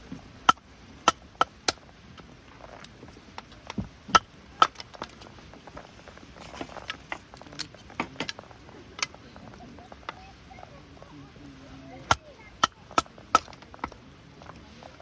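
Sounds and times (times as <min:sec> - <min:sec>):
sharp knocks and clicks: 0:00.5 - 0:05.3, 0:12.0 - 0:14.6.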